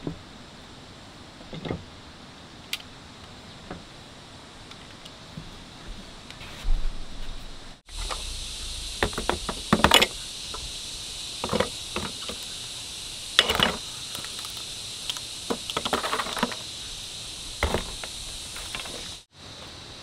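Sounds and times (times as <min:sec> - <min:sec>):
steady high hiss: 0:00.0 - 0:20.0
hard objects knocking and clattering: 0:09.0 - 0:10.2, 0:15.5 - 0:16.6.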